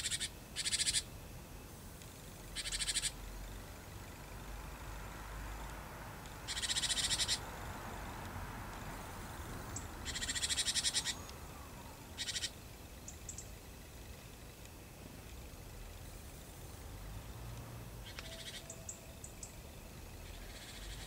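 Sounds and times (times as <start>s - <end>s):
small bird rattling call: 0.0s - 1.1s, 2.1s - 4.4s, 6.4s - 7.5s, 9.8s - 11.3s, 12.2s - 14.4s, 18.0s - 19.6s, 20.2s - 21.0s
faint low hum: 0.0s - 21.0s.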